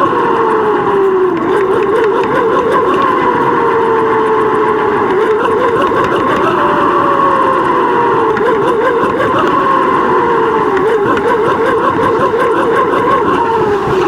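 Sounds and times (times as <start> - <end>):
wavering hum: 0.0 - 14.0
wind and riding noise: 0.0 - 14.0.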